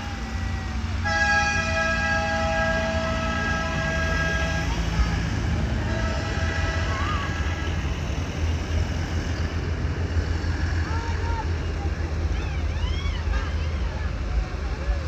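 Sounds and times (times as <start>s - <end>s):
tractor engines rumbling: 0.0s - 15.0s
multi-note air horn blasts: 0.4s - 7.9s.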